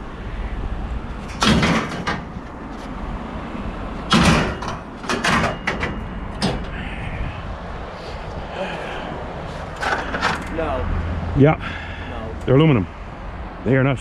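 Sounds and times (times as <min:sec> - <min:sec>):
scrap metal clanking and scraping: 0:01.2 - 0:03.0, 0:04.1 - 0:06.8.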